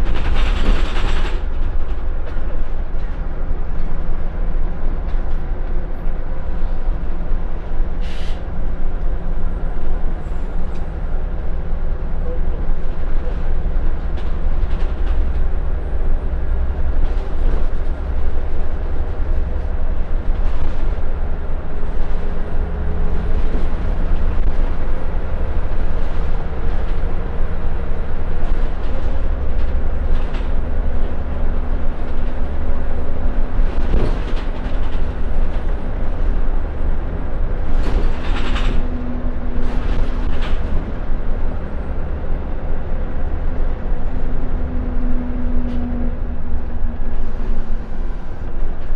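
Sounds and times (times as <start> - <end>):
rattles and knocks: 0.0 - 3.2, 37.6 - 41.4
bus diesel engine running: 0.0 - 48.9
road rumble: 0.0 - 48.9.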